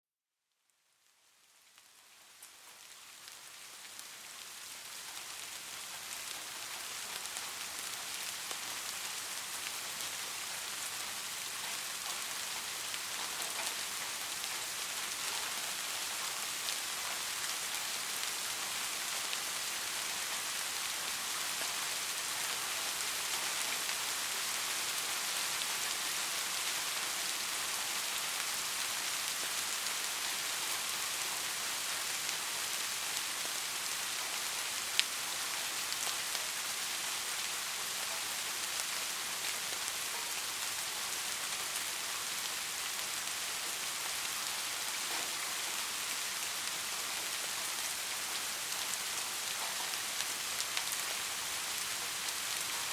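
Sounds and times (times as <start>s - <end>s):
rain falling: 0.6s - 52.9s.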